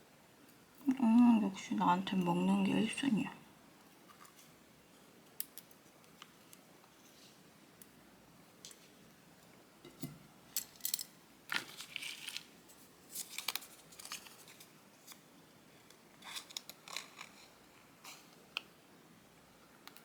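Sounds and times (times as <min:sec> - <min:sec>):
paper rustling: 0:11.5 - 0:15.2.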